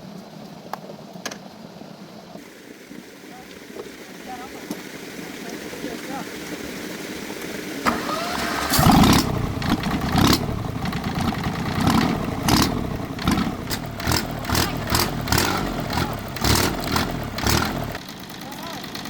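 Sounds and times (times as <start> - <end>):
small tractor engine surging: 7.8 - 19.0.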